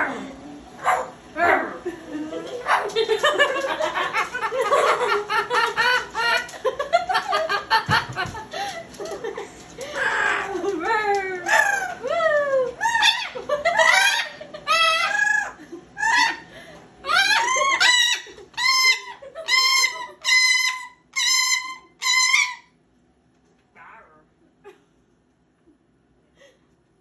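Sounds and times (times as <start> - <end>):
parrot calling loudly: 12.8 - 22.8.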